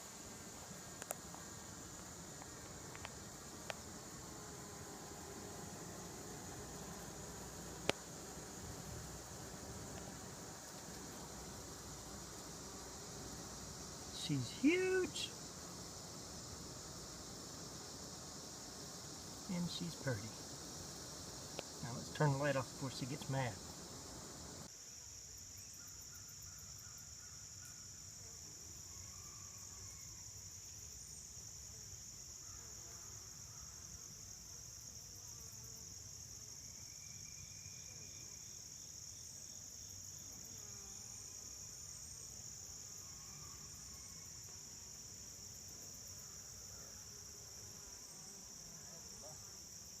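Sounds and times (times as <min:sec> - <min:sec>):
high-pitched insect chorus: 0:00.0 - 0:50.0
bees buzzing past: 0:00.2 - 0:24.7.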